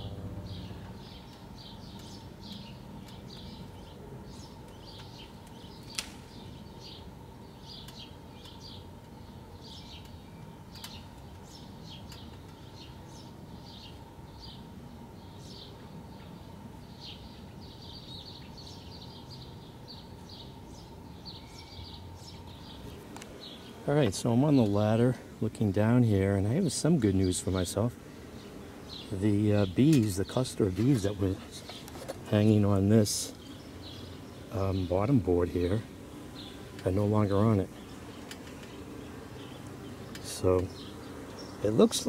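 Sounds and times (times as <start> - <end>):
birds chirping: 0.0 - 42.0
low background noise: 0.0 - 42.0.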